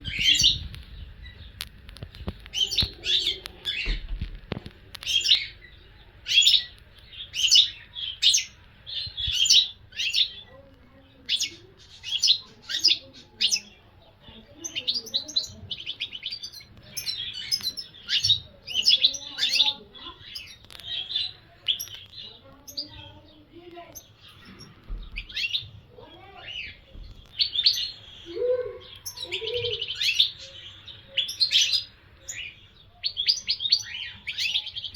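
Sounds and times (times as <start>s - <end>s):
goldfinch twittering song: 0.0s - 4.2s, 5.0s - 13.8s, 14.5s - 34.9s.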